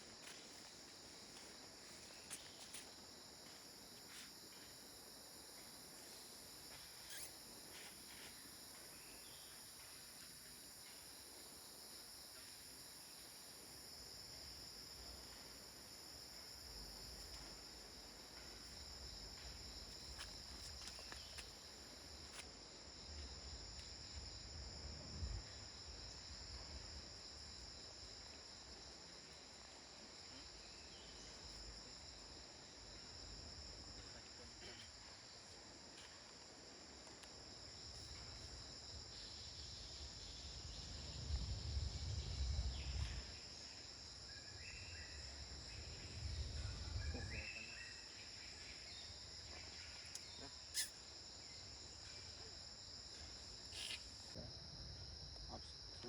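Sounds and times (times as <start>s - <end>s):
insects droning: 0.0s - 56.0s
wind rumble on microphone: 40.6s - 43.4s.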